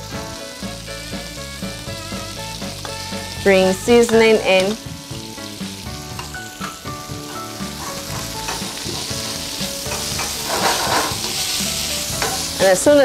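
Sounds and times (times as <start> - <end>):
chicken sizzling in oil: 0.0 - 13.0
soft background music: 0.0 - 13.0
tongs turning food in pan: 0.0 - 13.0.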